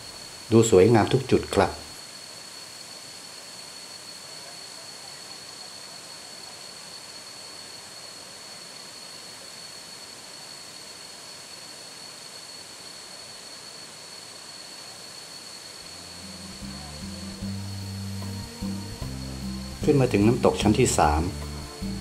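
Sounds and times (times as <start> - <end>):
thin high-pitched tone: 15.8 - 22.0.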